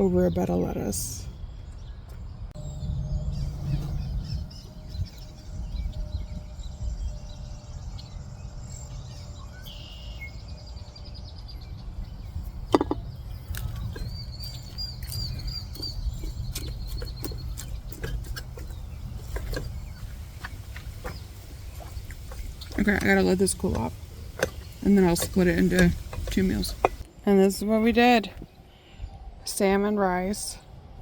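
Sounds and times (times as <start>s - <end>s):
birds chirping: 0.0s - 30.6s
low rumble: 1.2s - 9.6s
bird trill: 2.6s - 11.7s
handling clicks and knocks: 12.7s - 20.0s, 21.8s - 27.1s.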